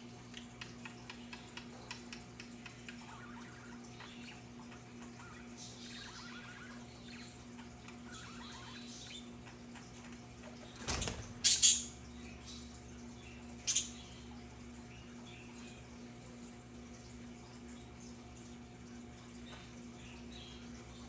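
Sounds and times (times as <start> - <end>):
budgerigars chirping: 11.4 - 12.6, 13.3 - 14.2.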